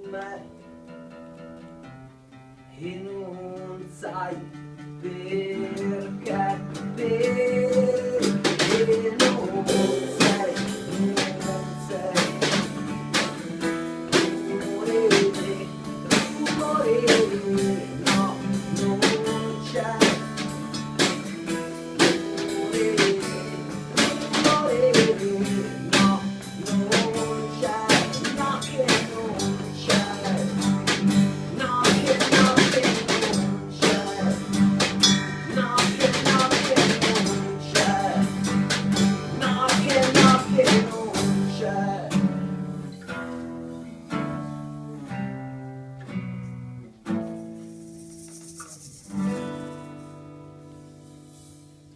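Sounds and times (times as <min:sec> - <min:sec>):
guitar: 0:00.0 - 0:51.9
drum-kit beat with rimshots: 0:05.8 - 0:42.2.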